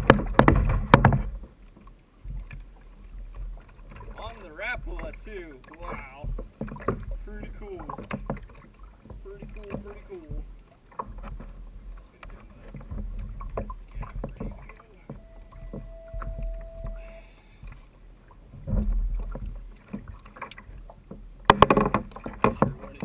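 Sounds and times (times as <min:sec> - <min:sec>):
knocks and bumps: 0:00.0 - 0:01.5, 0:12.6 - 0:17.0
knocks and clatter: 0:00.0 - 0:01.5, 0:18.6 - 0:23.0
water sloshing against a hull: 0:00.0 - 0:23.0
brief steady tone: 0:14.8 - 0:17.8.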